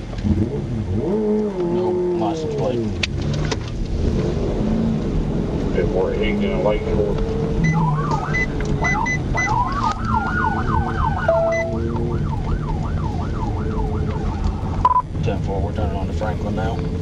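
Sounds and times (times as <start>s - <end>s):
car road noise: 0.0s - 17.0s
police siren wailing and yelping: 7.4s - 15.1s.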